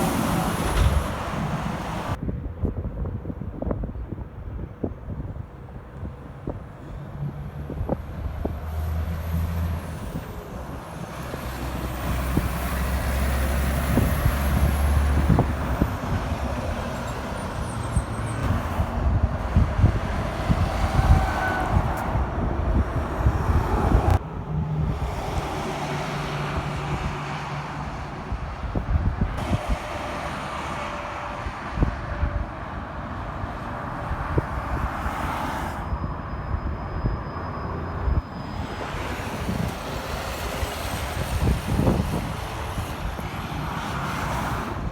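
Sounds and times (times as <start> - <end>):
diesel trucks driving past: 0.0 - 2.2, 6.2 - 44.9.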